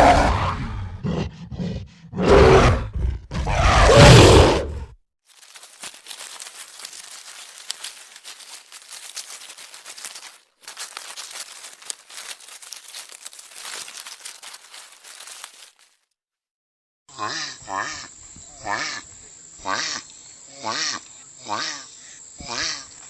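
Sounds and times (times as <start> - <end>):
dense crackling and rustling: 5.2 - 16.1.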